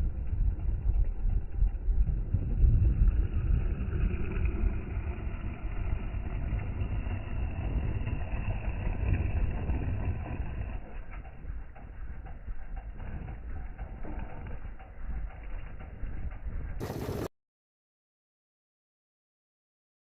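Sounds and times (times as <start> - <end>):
dirt bike engine running: 0.0 - 17.3
wind rumble on microphone: 0.0 - 17.3.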